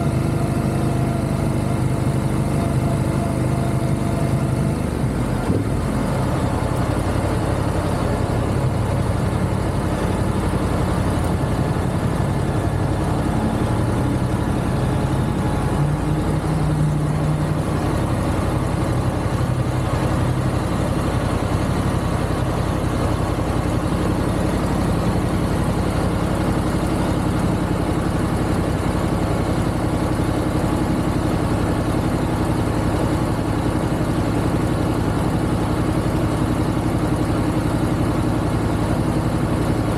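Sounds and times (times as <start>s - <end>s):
motorcycle engine cruising: 0.0s - 33.5s
wind and road noise: 4.6s - 33.5s.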